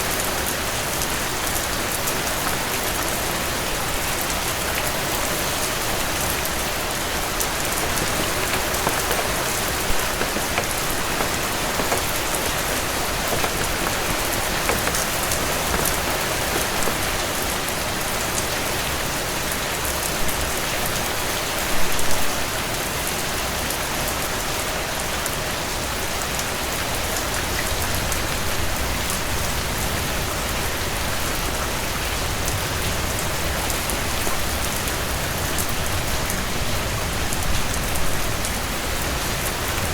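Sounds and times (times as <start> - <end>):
heavy rain falling: 1.0 - 18.5.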